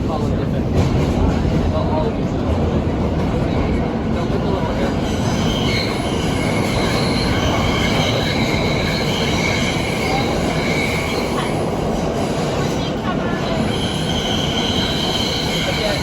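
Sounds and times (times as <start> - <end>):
train wheels rumbling on track: 0.0 - 16.0
wheels squealing: 4.8 - 11.7.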